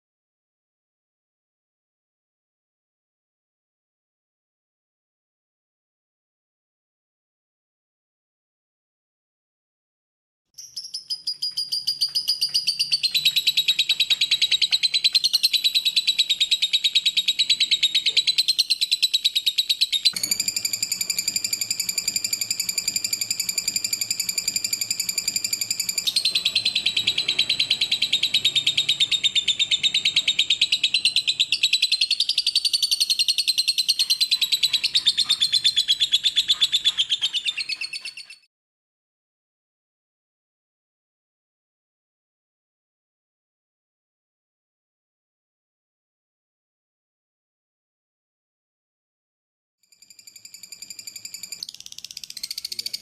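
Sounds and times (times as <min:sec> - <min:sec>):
lovebird chattering trill: 0:10.7 - 0:38.5.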